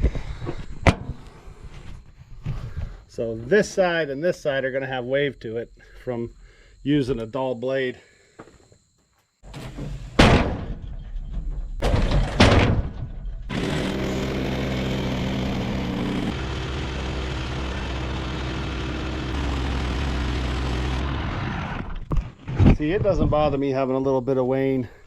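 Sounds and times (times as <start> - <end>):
engine running steadily: 13.5 - 22.1.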